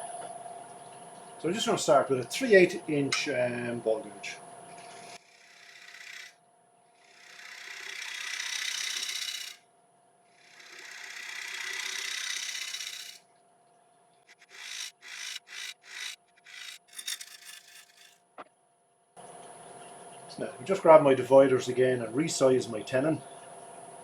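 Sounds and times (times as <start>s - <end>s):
lathe humming: 4.9s - 6.3s, 7.1s - 9.6s, 10.4s - 13.2s, 14.3s - 18.1s
gouge cutting wood on lathe: 5.0s - 6.3s, 7.0s - 9.6s, 10.4s - 13.2s, 14.3s - 18.1s.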